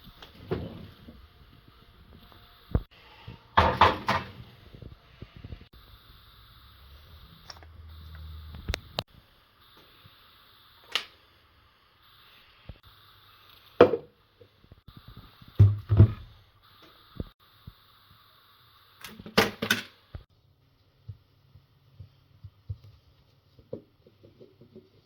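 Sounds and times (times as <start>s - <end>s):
faint hiss: 0.0s - 23.6s
objects knocking and clicking: 3.6s - 4.4s.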